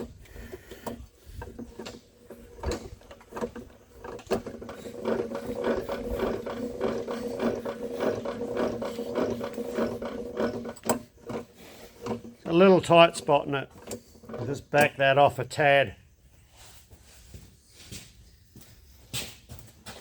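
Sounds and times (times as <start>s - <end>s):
gears clicking: 0.0s - 15.0s
machine hum: 0.0s - 16.1s.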